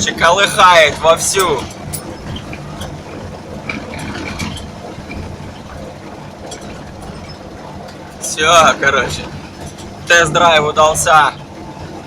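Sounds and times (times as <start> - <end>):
car engine and road rumble: 0.0 - 12.0
car body knocks and rattles: 0.7 - 8.2.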